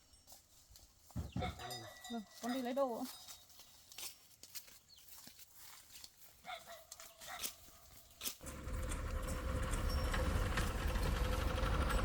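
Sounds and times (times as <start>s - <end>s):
motor humming: 8.4s - 12.0s.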